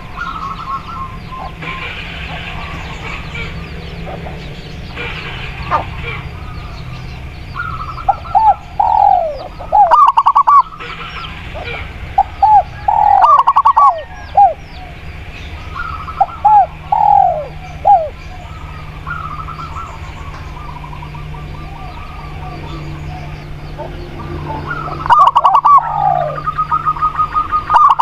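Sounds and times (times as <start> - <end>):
doves cooing: 0.0 - 28.0
small birds chirping: 0.0 - 28.0.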